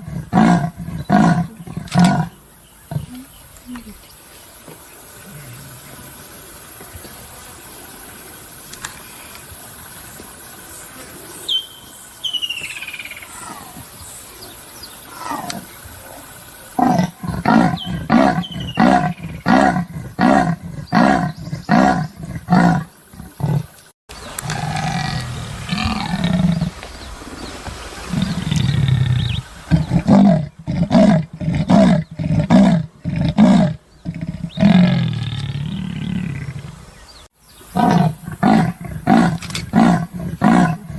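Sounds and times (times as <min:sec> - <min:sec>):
leopard sawing grunts: 0:24.4 - 0:26.7, 0:37.8 - 0:40.9.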